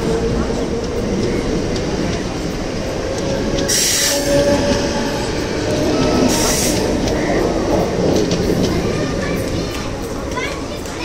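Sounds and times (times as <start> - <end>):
train rumbling on rails: 0.0 - 11.0.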